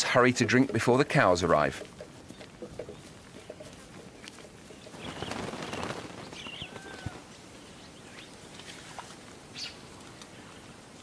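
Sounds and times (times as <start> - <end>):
faint outdoor background: 0.0 - 11.0
wings flapping: 2.0 - 7.3
birds chirping and whistling: 2.0 - 8.3.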